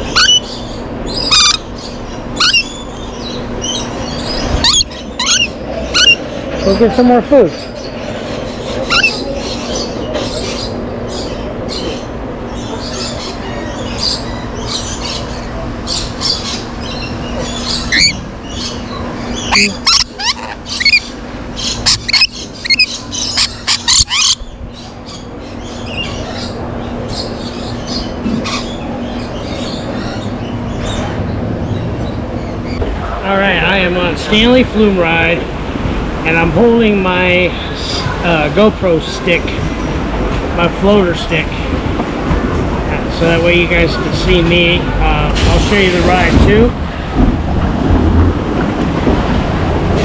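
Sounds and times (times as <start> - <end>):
birds screeching and squeaking: 0.0 - 35.3, 36.3 - 39.7.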